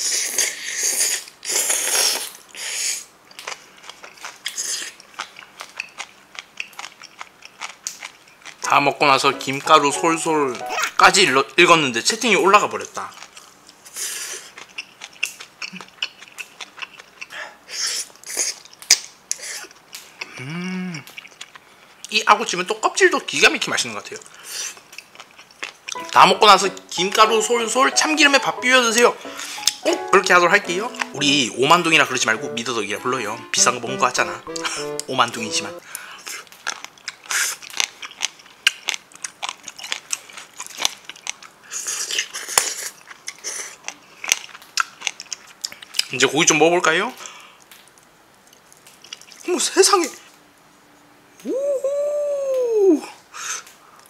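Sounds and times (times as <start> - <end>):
slurping food: 0.0 - 3.0
chewing clicks and crunches: 3.2 - 8.7, 12.8 - 17.4, 18.0 - 20.4, 21.0 - 22.2, 24.0 - 26.0, 36.0 - 46.2, 47.2 - 49.5.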